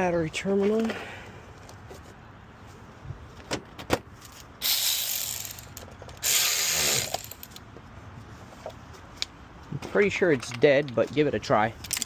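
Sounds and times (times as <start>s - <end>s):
ratchet wrench clicking: 4.6s - 7.6s.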